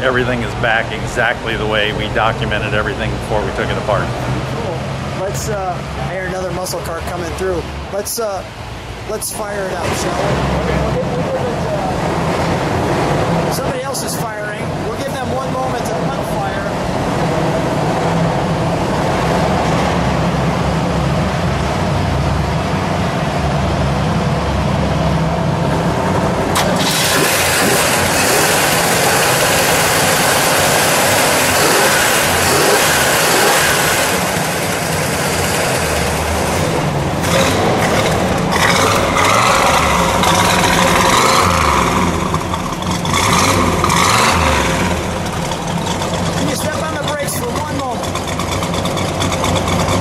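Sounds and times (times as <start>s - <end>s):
car engine starting: 0.0s - 50.0s
loud engine running: 0.0s - 50.0s.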